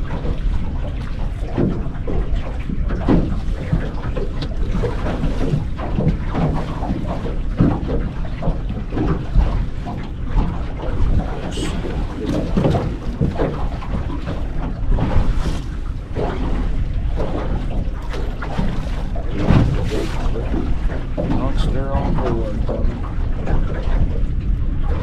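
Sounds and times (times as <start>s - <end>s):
water around a boat hull: 0.0s - 25.0s
wind buffeting the microphone: 0.0s - 25.0s.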